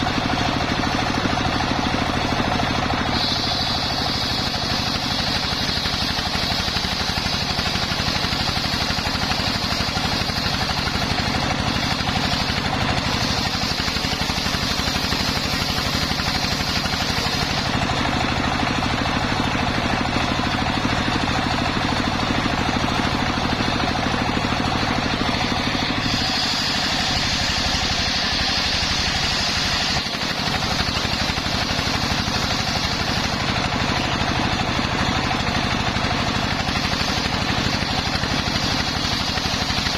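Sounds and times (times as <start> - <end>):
sawmill engine running: 0.0 - 39.9
high whine: 22.4 - 34.1.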